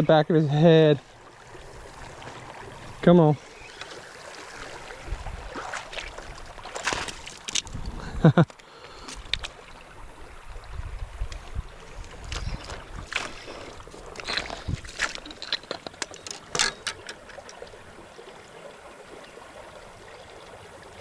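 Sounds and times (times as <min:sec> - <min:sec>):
water splashing and sloshing: 0:00.0 - 0:21.0
sharp clicks and knocks: 0:14.2 - 0:17.6.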